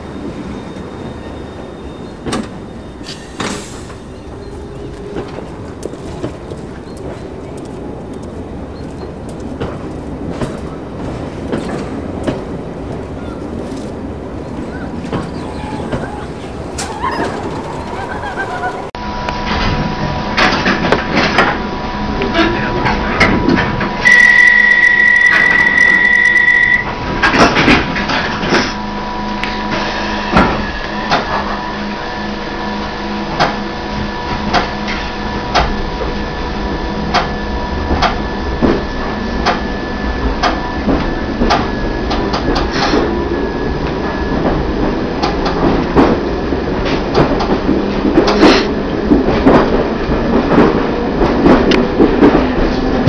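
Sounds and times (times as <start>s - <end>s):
train clunks: 0.0s - 31.9s, 33.2s - 53.0s
train running hum: 0.0s - 53.0s
steady high beep: 24.0s - 26.9s.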